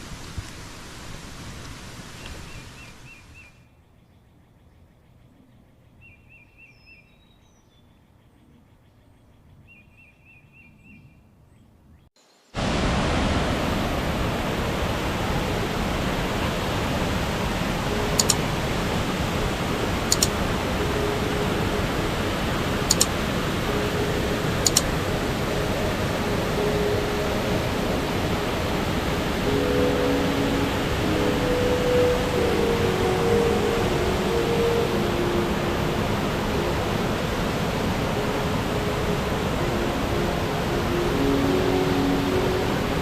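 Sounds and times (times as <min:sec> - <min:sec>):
rushing water: 0:00.0 - 0:03.5, 0:12.5 - 0:43.0
sharp ticks: 0:18.2 - 0:18.4, 0:20.1 - 0:20.3, 0:22.9 - 0:23.1, 0:24.6 - 0:24.9
bird trills: 0:20.1 - 0:20.3, 0:22.9 - 0:23.1, 0:24.6 - 0:24.9.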